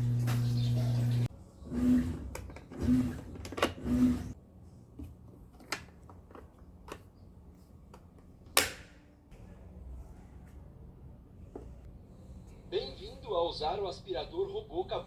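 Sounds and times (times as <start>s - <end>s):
sharp plastic snap: 8.6s - 9.0s.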